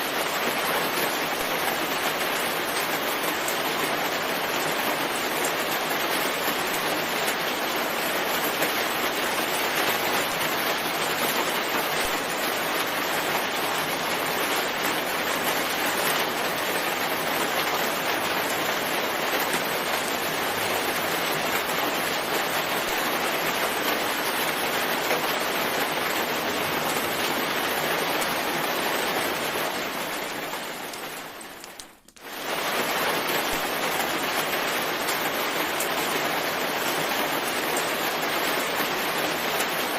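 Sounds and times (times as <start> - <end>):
heavy rain in forest: 0.0 - 39.9.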